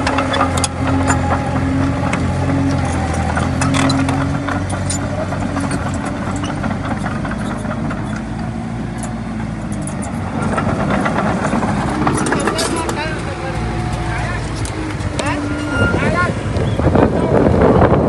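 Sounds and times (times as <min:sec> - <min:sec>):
metallic clicks and clanks: 0:00.0 - 0:13.2
bulldozer diesel engine running: 0:00.0 - 0:18.0.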